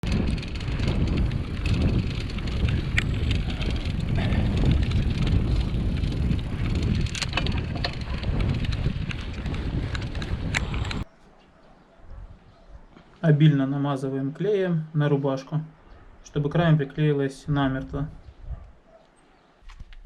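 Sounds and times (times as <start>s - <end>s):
bike clicks and rattles: 0.0s - 11.1s
steady low rumble: 0.0s - 11.1s
wind buffeting microphone: 0.0s - 11.1s, 17.6s - 18.9s.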